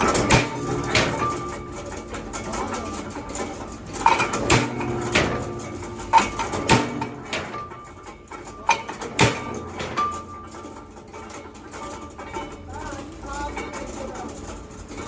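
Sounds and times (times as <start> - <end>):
metal clanks and knocks: 0.0 - 15.0.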